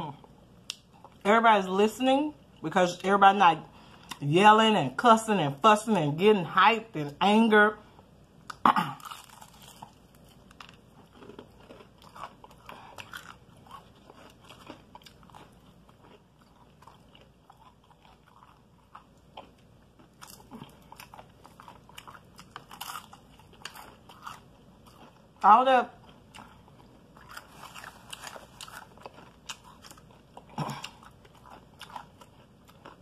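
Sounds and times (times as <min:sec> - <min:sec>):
wet chewing: 0:08.5 - 0:25.3, 0:26.0 - 0:33.0
crunching fried chicken: 0:08.5 - 0:33.0.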